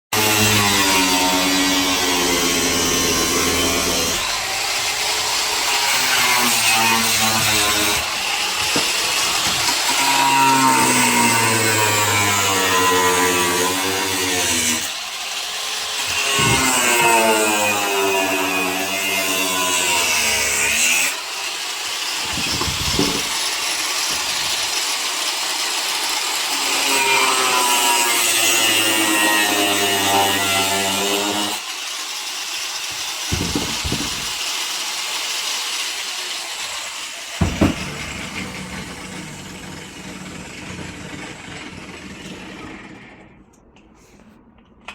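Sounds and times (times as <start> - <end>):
knocks in washing machine: 33.3 - 34.4, 37.4 - 38.1
washing machine running: 37.4 - 43.3
washing machine whine: 37.4 - 43.5.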